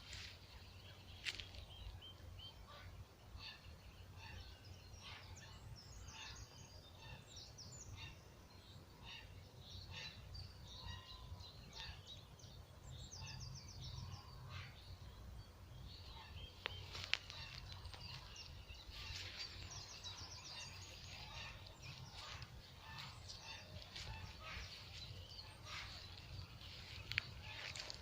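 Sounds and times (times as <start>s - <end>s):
small birds chirping: 0.0s - 28.0s
low steady rumble: 12.4s - 28.0s
high bird trills: 16.0s - 28.0s.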